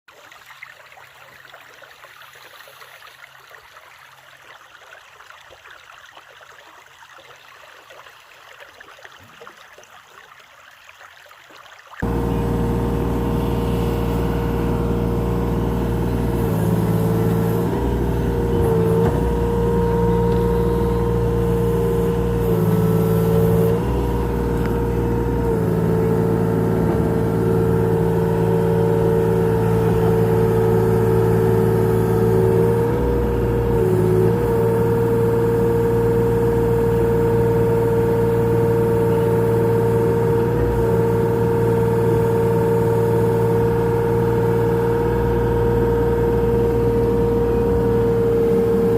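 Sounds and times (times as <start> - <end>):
excavator diesel engine running: 12.0 - 48.9.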